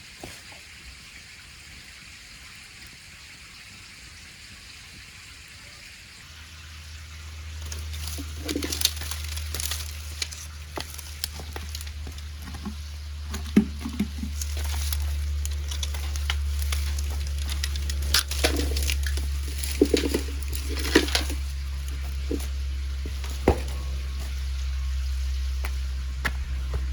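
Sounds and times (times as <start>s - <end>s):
steady low rumble: 6.2s - 26.9s
wood fire crackling and popping: 7.5s - 26.9s.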